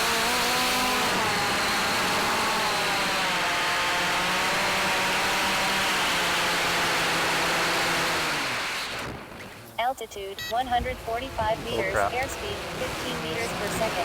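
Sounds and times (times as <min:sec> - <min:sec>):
drone motors whining: 0:10.5 - 0:14.0.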